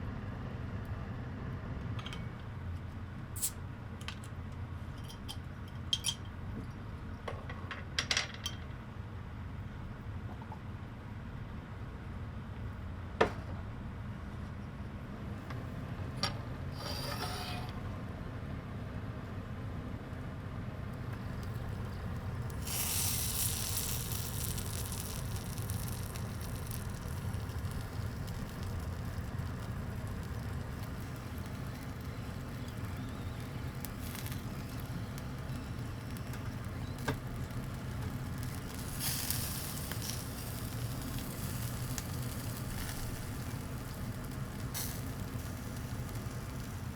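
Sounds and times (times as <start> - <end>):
food sizzling on a grill: 21.3 - 46.9.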